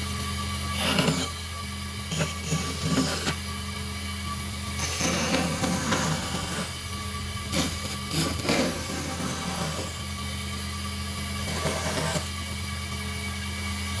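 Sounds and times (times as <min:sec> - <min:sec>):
power tool motor running: 0:00.0 - 0:13.9
harsh bursts cutting wood: 0:00.8 - 0:01.4, 0:02.1 - 0:03.4, 0:04.8 - 0:10.1, 0:11.4 - 0:12.4.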